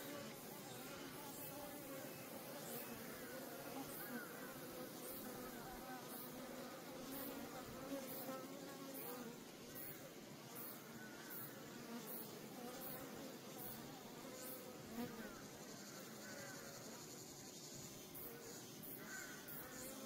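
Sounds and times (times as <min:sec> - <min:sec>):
honeybees buzzing: 0:00.0 - 0:09.6.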